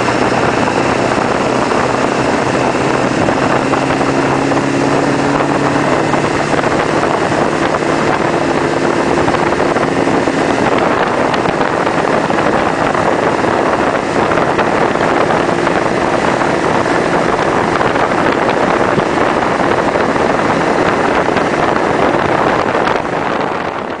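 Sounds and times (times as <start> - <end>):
diesel engine drone under load: 0.0 - 24.0
wind and road noise: 0.0 - 24.0.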